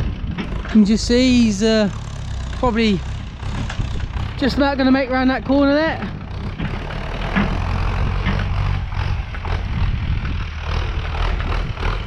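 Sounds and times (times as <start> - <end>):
tractor diesel engine under load: 0.0 - 12.0
light knocks and rattles: 5.5 - 9.5.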